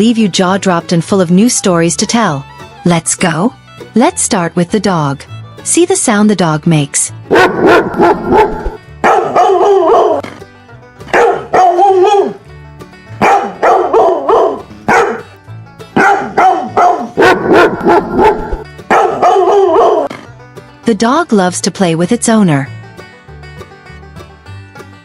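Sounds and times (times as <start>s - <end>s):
dog barking: 7.3s - 10.4s, 11.1s - 12.4s, 13.2s - 15.4s, 16.0s - 20.1s.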